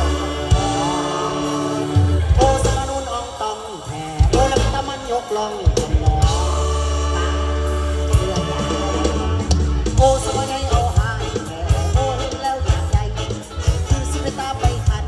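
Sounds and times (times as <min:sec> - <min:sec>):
electric bass line: 0:00.0 - 0:15.0
person singing: 0:00.0 - 0:15.0.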